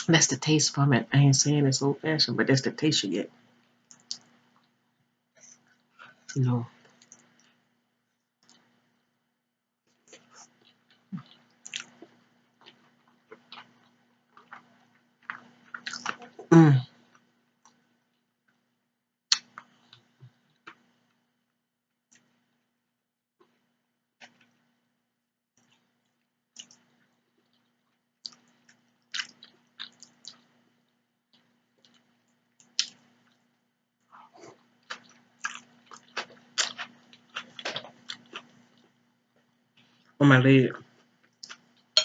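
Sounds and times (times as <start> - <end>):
mouth chewing food: 9.9 - 16.5, 19.3 - 20.9, 25.6 - 30.6, 31.3 - 40.1
person humming mm: 16.5 - 16.9.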